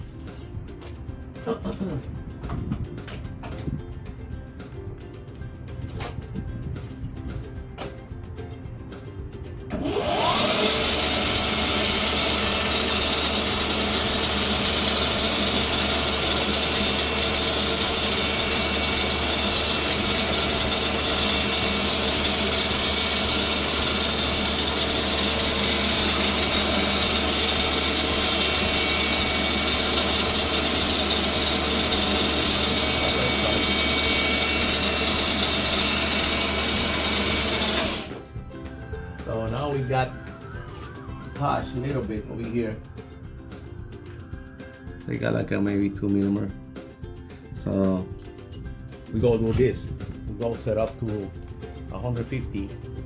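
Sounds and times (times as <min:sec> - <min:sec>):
cutting machine whining: 0:09.7 - 0:38.2.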